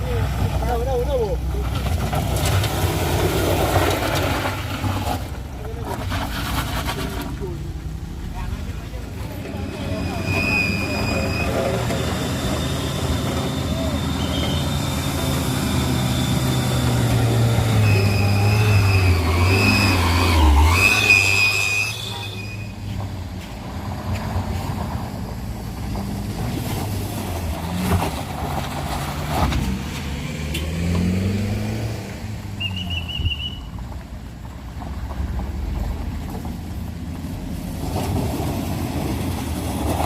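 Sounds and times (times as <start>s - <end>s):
vehicle engine labouring uphill: 0.0s - 40.0s
high wavering whine: 9.5s - 22.7s.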